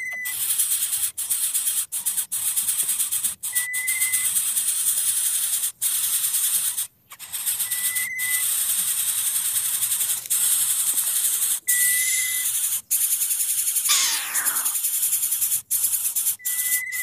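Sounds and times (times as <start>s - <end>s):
bird whistles: 13.9s - 14.8s
falling bird whistle: 13.9s - 14.8s.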